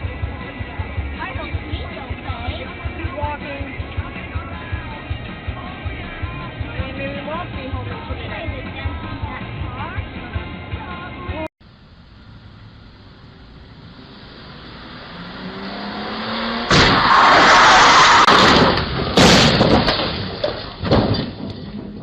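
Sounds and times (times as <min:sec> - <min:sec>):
car engine and road noise: 0:00.0 - 0:22.0
loud car crash: 0:15.0 - 0:22.0.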